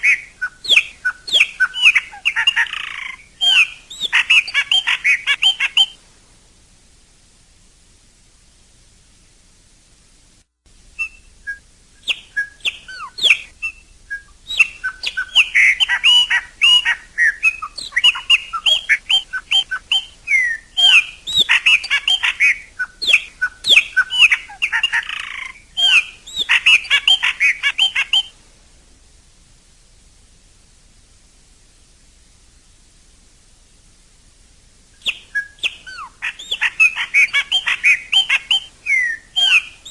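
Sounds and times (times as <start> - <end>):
bird whistling and chirping: 0.0 - 6.0, 11.0 - 28.4, 35.0 - 39.9.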